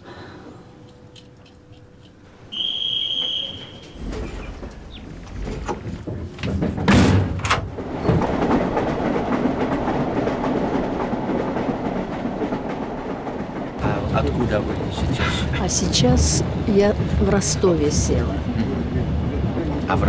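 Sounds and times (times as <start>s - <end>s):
train rumbling: 0.0s - 20.0s
wheels rattling on rail: 0.0s - 20.0s
carriage door slamming: 6.5s - 7.7s.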